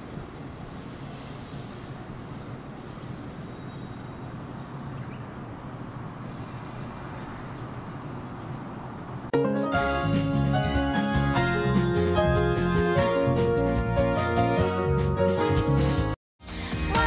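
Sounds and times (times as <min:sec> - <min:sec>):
train rumbling: 0:00.0 - 0:04.2.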